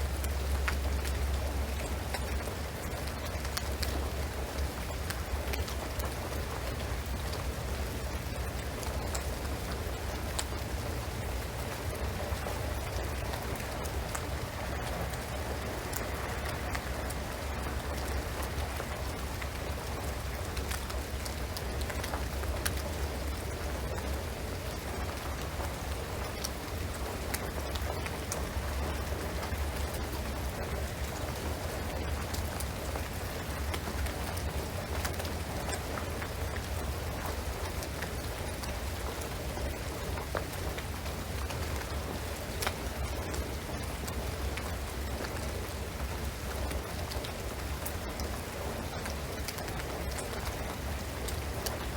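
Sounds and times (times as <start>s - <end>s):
rain on a roof: 0.0s - 51.9s
sharp drip ticks: 0.1s - 51.9s.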